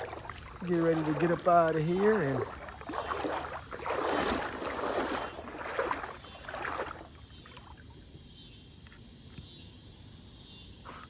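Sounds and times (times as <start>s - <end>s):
water splashing and sloshing: 0.0s - 8.2s
high drone of insects: 0.0s - 11.0s.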